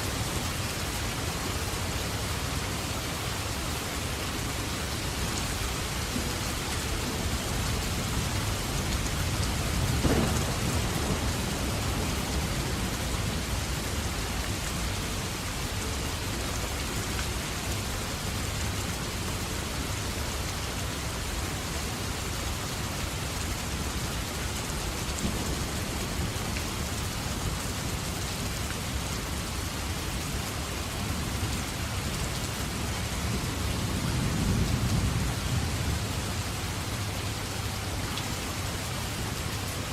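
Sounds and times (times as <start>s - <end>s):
heavy rain falling: 0.0s - 39.9s
rolls of thunder: 9.7s - 12.9s.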